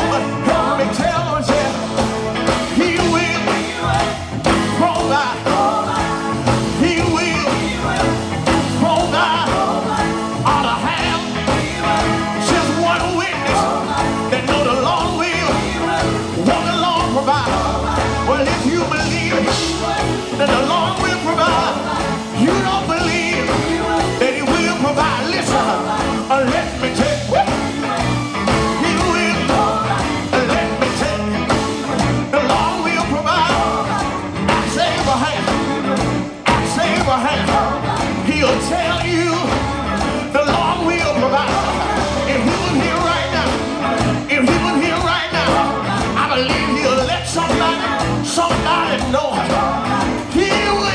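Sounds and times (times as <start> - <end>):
band playing: 0.0 - 50.9
people singing: 0.0 - 50.9.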